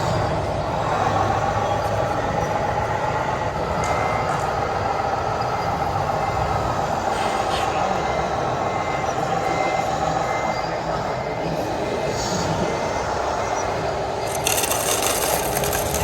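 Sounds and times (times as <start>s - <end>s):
model truck motors whirring: 14.1s - 16.0s.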